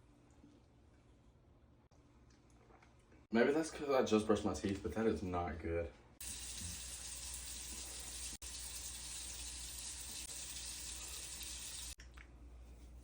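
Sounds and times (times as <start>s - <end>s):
water running from tap: 6.2s - 12.0s.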